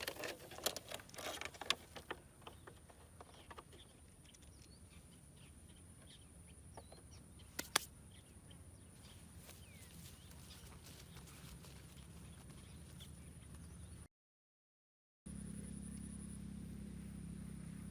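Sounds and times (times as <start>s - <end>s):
handling clicks and rustles: 0.0s - 5.0s
sharp clicks: 7.6s - 7.9s.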